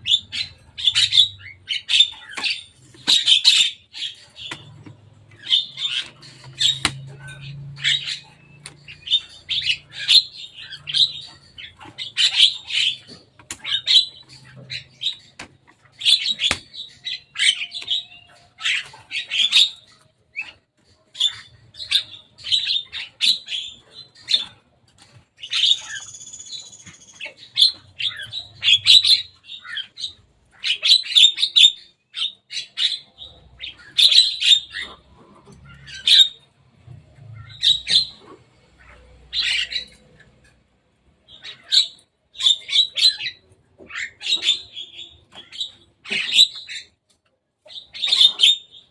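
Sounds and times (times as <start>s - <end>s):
myna harsh chattering calls: 0.0s - 19.9s.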